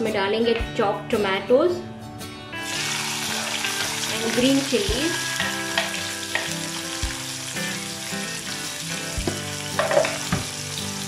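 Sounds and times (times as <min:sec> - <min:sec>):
vegetables sizzling in hot oil: 0:02.6 - 0:11.0
steel spoon knocking on pan: 0:05.4 - 0:06.6.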